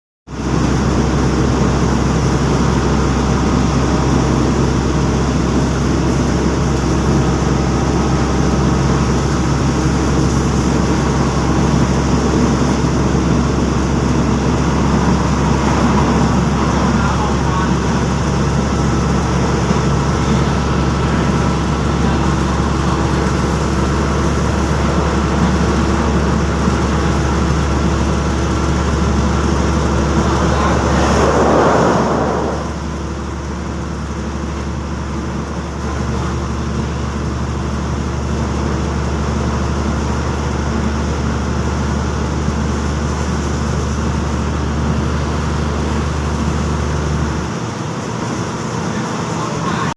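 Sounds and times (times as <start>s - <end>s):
diesel train engine hum: 0.3s - 49.9s
loud rushing burst: 28.6s - 33.9s.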